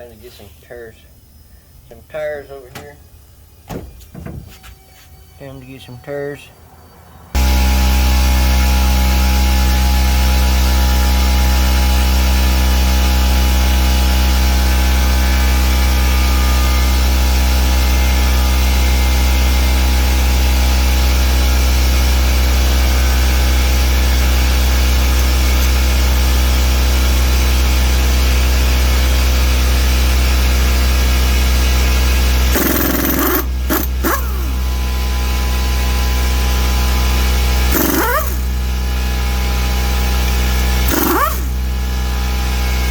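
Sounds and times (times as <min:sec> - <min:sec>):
motor droning: 0:32.1 - 0:42.9.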